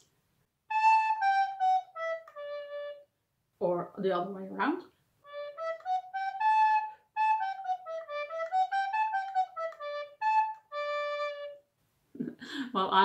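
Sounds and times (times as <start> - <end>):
soprano recorder playing: 0.7 - 3.1, 5.3 - 11.6.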